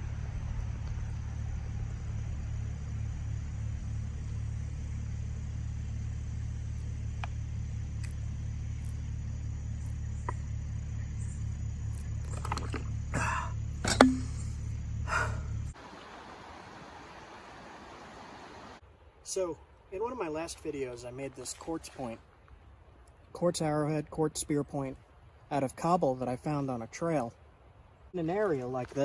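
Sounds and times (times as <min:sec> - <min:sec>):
low pulsing engine rumble: 0:00.0 - 0:15.8.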